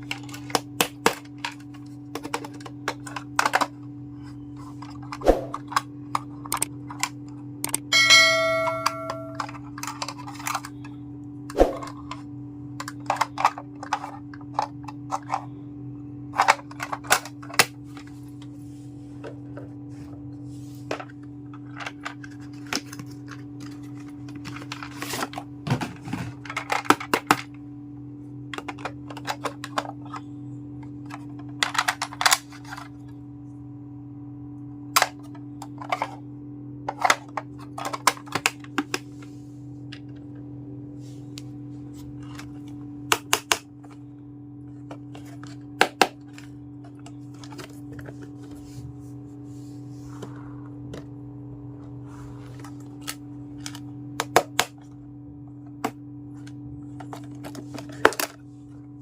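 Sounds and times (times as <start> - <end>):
toy kitchen pieces clicking: 0.0 - 3.8, 8.8 - 10.9, 12.8 - 15.5, 16.3 - 17.7, 26.3 - 27.5, 28.6 - 30.2, 31.0 - 32.9, 36.9 - 38.9
steady low hum: 0.0 - 59.0.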